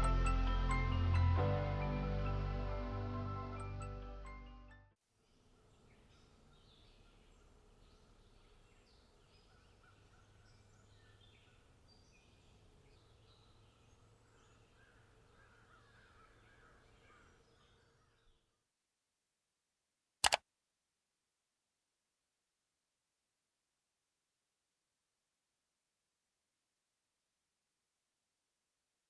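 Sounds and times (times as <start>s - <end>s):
birds chirping: 5.3s - 18.4s.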